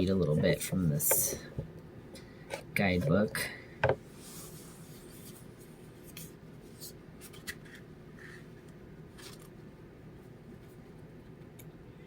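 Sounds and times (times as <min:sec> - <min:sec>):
paper pages rustling: 0:09.1 - 0:09.5.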